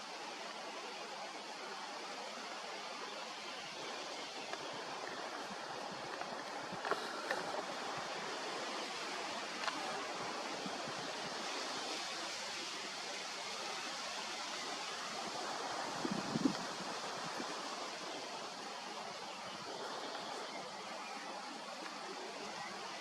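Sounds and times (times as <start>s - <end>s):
rushing outdoor noise: 0.0s - 23.0s
faint clicks: 9.6s - 9.9s.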